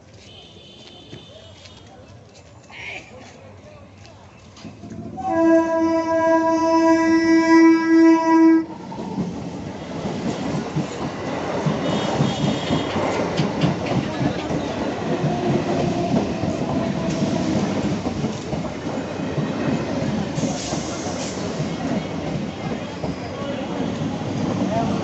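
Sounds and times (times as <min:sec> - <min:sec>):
train wheel rumble: 0:04.0 - 0:25.0
wheels clacking over rail joints: 0:08.9 - 0:25.0.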